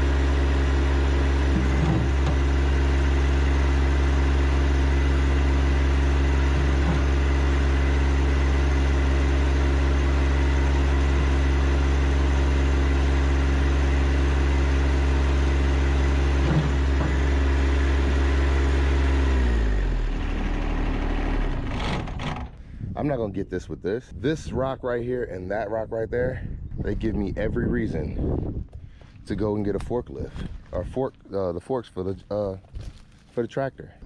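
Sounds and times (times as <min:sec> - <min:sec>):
tractor diesel engine running: 0:00.0 - 0:23.2.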